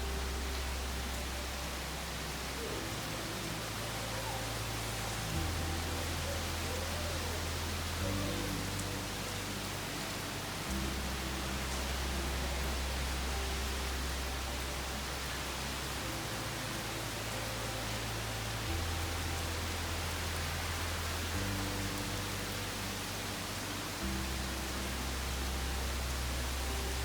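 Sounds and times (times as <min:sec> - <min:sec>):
heavy rain and wind hiss: 0:00.0 - 0:27.0
soft background music chords: 0:00.0 - 0:27.0.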